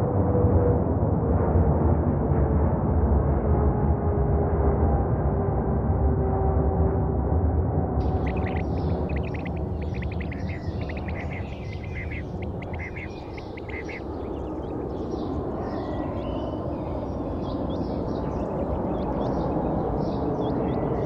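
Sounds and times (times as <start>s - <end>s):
birds chirping: 8.0s - 21.0s
steady low rumble: 8.0s - 21.0s.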